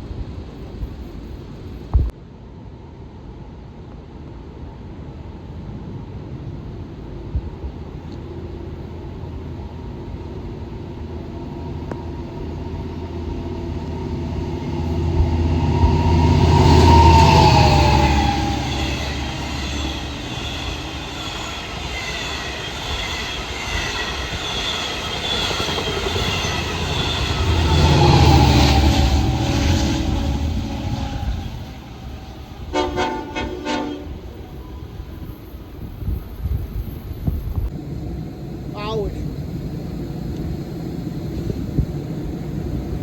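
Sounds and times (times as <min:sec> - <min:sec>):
train passing: 0:00.0 - 0:43.0
train wheels on rails: 0:06.6 - 0:37.8
whine dropping in pitch: 0:08.3 - 0:33.5.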